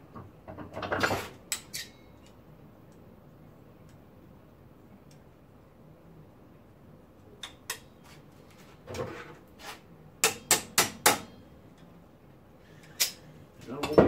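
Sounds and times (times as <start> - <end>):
sharp metallic knocks: 10.2 - 11.4.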